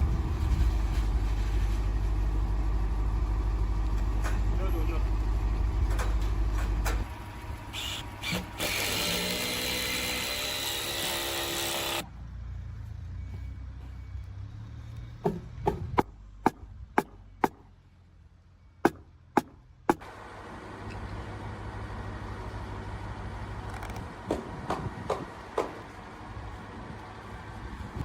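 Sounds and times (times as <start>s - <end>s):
power tool whining: 7.7s - 12.0s
sharp knocks: 15.2s - 17.6s.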